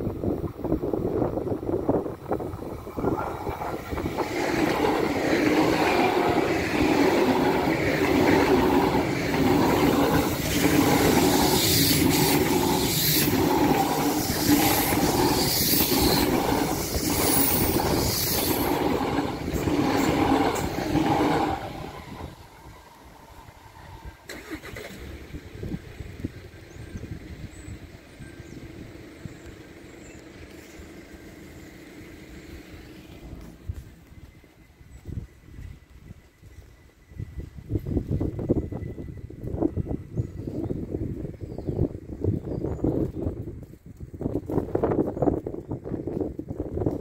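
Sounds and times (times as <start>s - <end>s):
train passing at speed: 0.0s - 47.0s
rhythmic wheel clatter: 3.0s - 22.1s
hiss: 8.3s - 25.2s.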